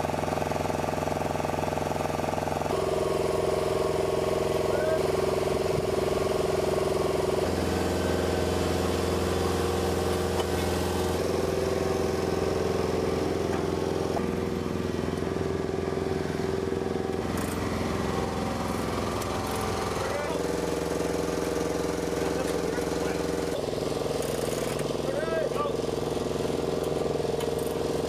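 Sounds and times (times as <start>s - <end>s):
engine running: 0.0s - 28.0s.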